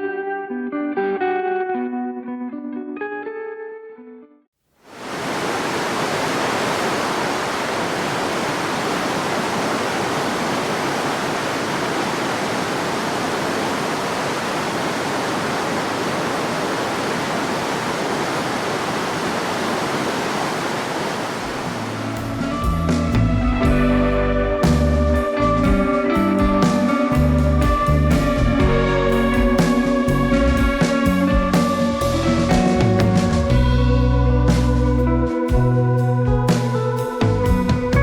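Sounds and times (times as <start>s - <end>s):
rushing water: 4.8s - 33.6s.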